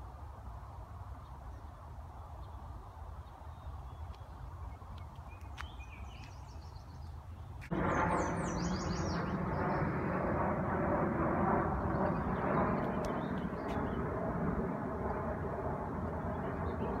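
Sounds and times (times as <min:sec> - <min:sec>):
jet airliner roaring overhead: 0:07.6 - 0:17.0.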